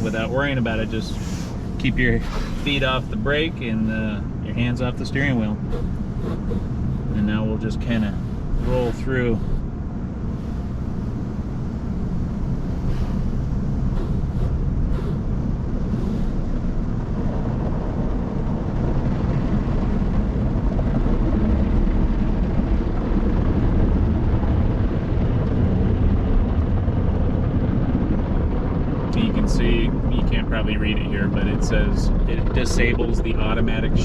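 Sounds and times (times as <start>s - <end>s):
car wash water spray: 0.0s - 4.2s, 5.2s - 9.6s, 10.2s - 11.6s, 12.2s - 16.5s.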